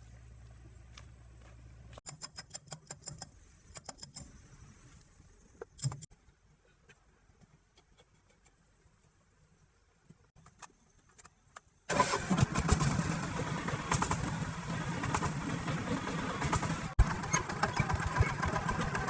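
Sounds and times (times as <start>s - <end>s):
truck engine starting and running: 11.9s - 19.0s.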